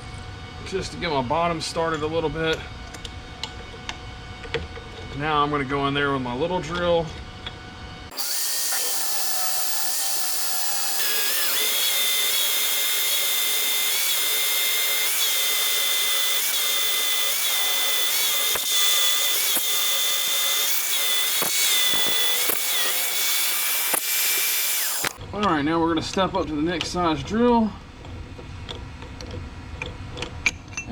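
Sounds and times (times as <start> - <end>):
drill motor whine: 8.1 - 25.2
sharp clicks: 8.1 - 25.2.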